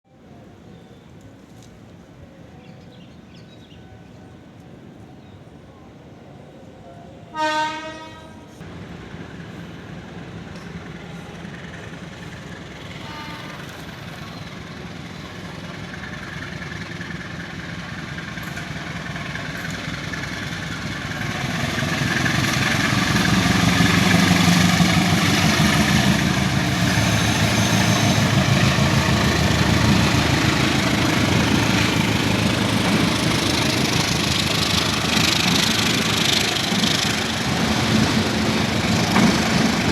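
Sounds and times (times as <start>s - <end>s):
train rumbling: 7.2s - 39.9s
train horn blast: 7.3s - 8.6s, 12.9s - 13.9s, 26.7s - 28.9s.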